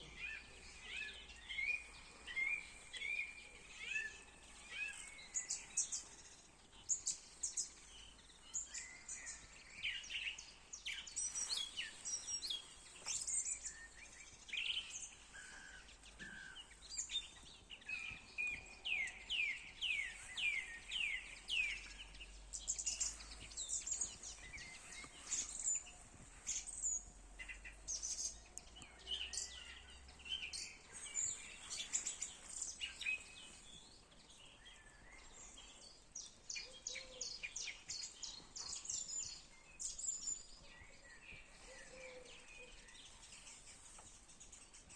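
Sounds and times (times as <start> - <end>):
songbirds singing: 0.0 - 44.9.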